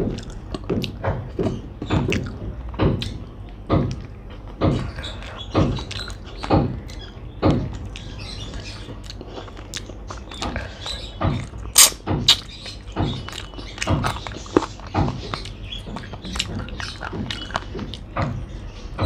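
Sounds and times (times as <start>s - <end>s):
chewing with wet mouth sounds: 0.0s - 19.0s.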